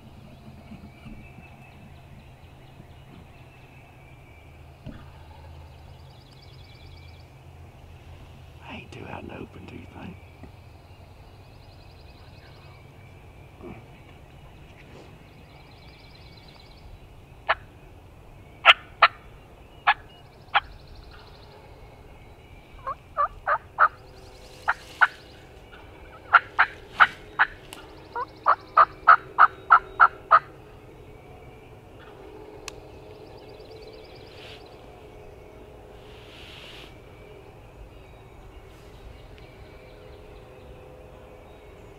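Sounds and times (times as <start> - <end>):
turkey clucks and yelps: 22.8 - 24.0, 26.2 - 27.6.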